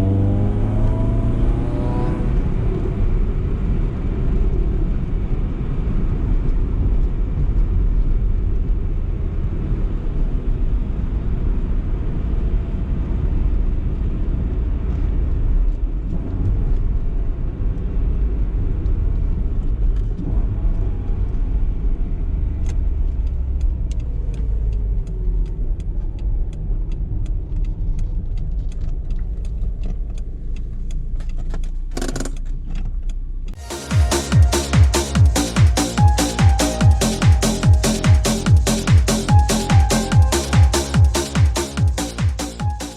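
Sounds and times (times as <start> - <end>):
road and tyre rumble: 0.0 - 33.6.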